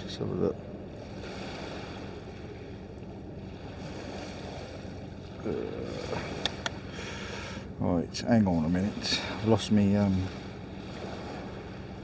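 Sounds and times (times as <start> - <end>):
sea surf on shore: 0.0 - 12.0
faint clicks: 6.4 - 6.8.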